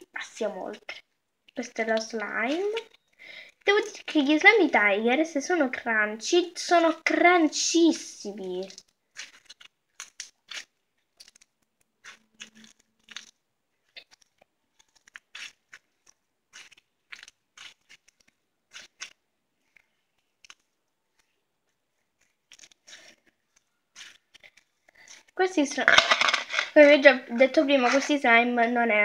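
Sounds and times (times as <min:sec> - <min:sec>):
crunchy slime crackling and popping: 0:08.0 - 0:21.4, 0:22.2 - 0:26.8.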